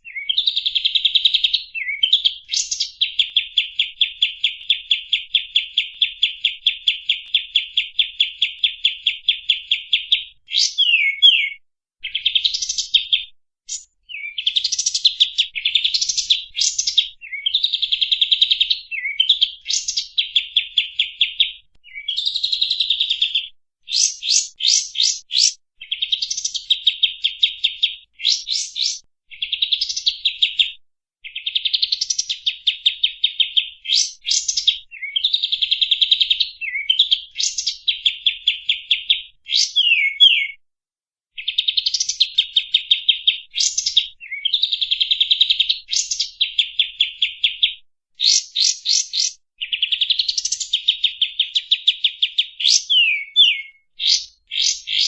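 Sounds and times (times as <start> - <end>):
songbird rising whistled notes: 10.5 - 12.6, 39.6 - 40.6.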